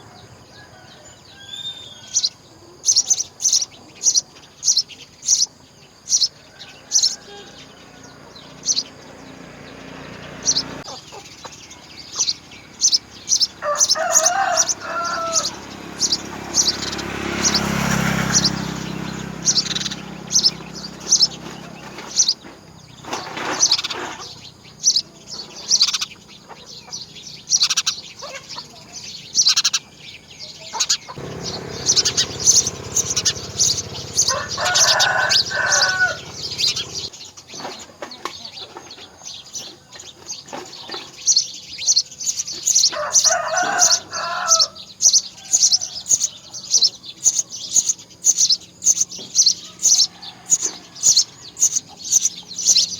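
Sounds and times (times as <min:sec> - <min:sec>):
birds chirping: 0:00.0 - 0:52.9
lower bending bird calls: 0:06.2 - 0:37.1.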